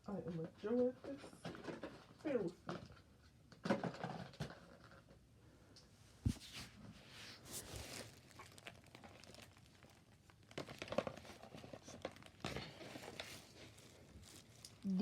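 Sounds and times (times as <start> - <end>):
gift bags crinkling and rustling: 7.4 - 15.0.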